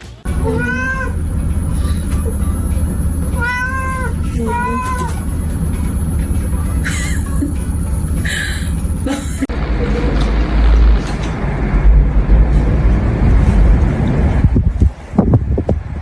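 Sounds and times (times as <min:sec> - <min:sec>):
loud low rumble: 0:00.2 - 0:16.0
cat meowing: 0:00.4 - 0:01.2, 0:03.3 - 0:05.3.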